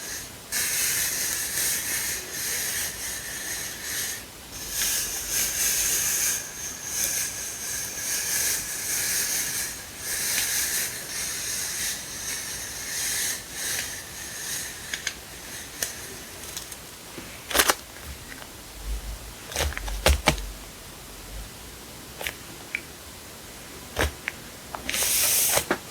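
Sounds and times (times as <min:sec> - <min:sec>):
sticker packaging rustling: 0:16.4 - 0:20.6.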